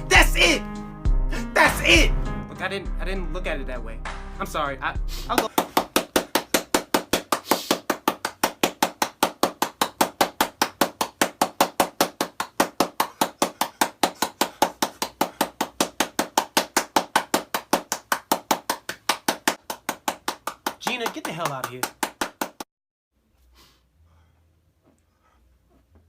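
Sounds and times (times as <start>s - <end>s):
rapid knocking: 5.4s - 22.6s.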